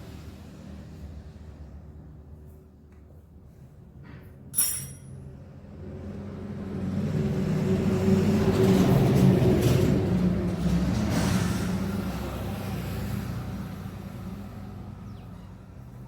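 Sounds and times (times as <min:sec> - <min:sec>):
sharp metallic clink: 0:04.6 - 0:05.2.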